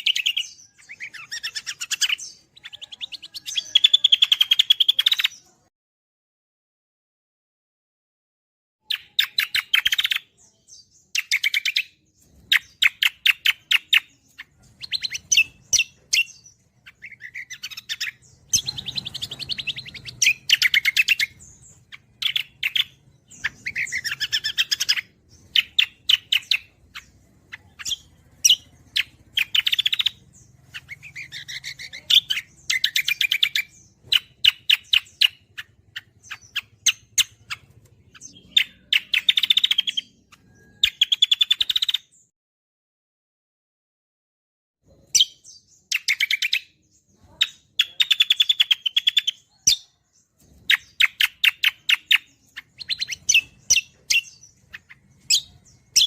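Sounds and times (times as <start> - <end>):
songbird singing: 0.0 - 5.7, 8.8 - 42.3, 44.9 - 56.0.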